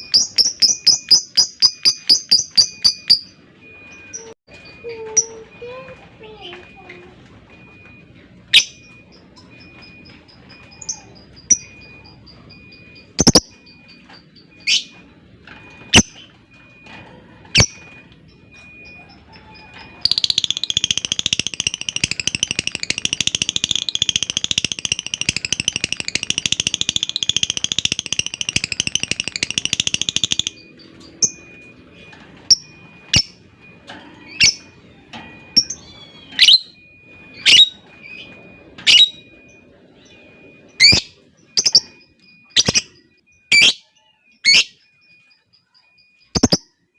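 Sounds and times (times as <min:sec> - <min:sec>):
bird chattering trill: 0:13.2 - 0:13.5, 0:20.1 - 0:30.6, 0:46.4 - 0:46.7.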